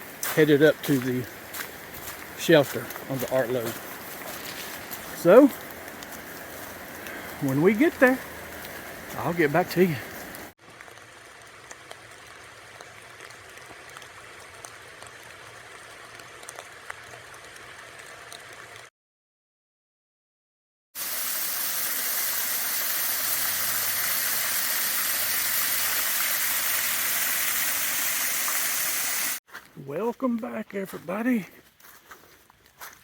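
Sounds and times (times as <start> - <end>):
steady rush of water: 0.0 - 10.6
water drips: 0.0 - 18.8
light rain falling: 0.0 - 18.9.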